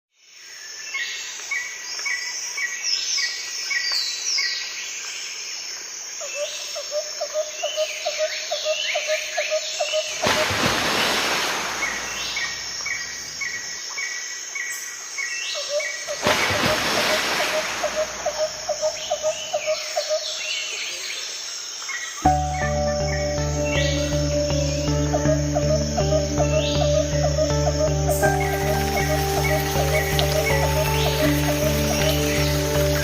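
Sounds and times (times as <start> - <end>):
pulsed bird trill: 22.3 - 32.8
birds chirping and whistling: 22.3 - 33.0.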